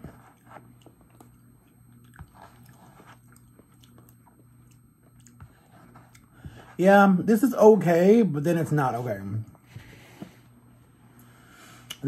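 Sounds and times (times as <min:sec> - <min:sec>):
person chewing: 0:00.2 - 0:06.3.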